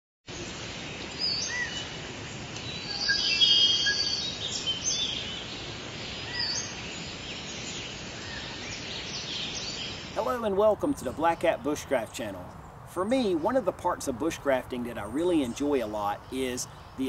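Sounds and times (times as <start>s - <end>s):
steady background hiss: 0.3s - 17.0s
birds singing and chirping: 0.7s - 2.0s, 2.6s - 17.0s.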